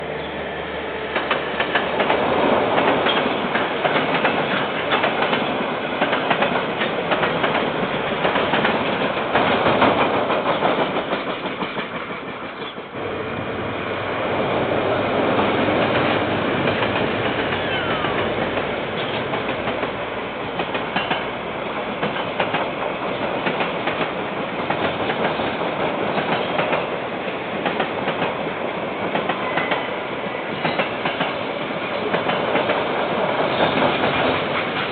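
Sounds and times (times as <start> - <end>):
train wheels clattering over rail joints: 1.1 - 12.9, 15.4 - 21.3, 21.9 - 27.0, 30.5 - 34.9.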